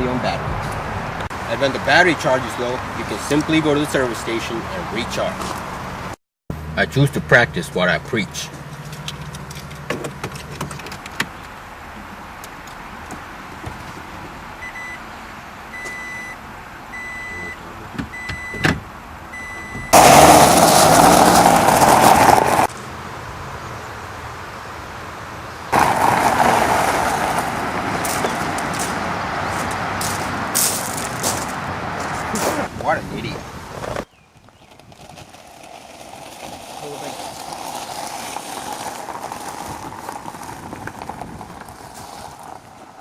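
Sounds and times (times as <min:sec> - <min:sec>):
car rushing noise moving off: 0:08.3 - 0:43.0
car warning chime beeping: 0:14.6 - 0:15.0, 0:15.7 - 0:20.0.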